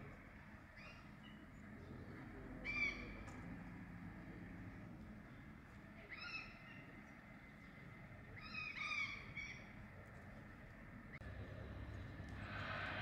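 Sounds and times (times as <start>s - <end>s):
faint low rumble: 9.2s - 13.0s.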